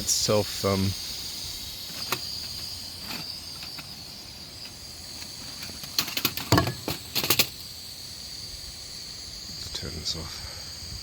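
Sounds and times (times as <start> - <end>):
high-pitched insect drone: 0.0 - 11.0
sharp clatters: 4.6 - 7.6.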